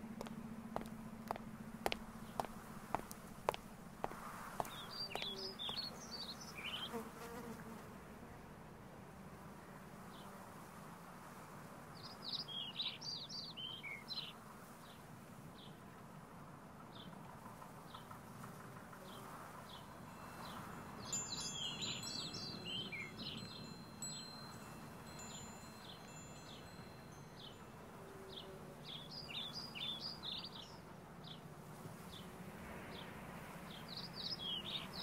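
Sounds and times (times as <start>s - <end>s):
small birds chirping: 0.1s - 7.1s, 12.0s - 15.0s, 19.0s - 31.5s, 32.1s - 35.0s
thin high ringing: 19.9s - 29.3s.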